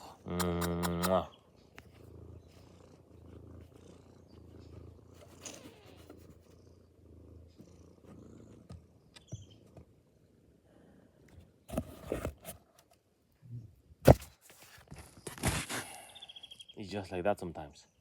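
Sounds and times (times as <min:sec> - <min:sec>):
cat purring: 0:00.0 - 0:10.6.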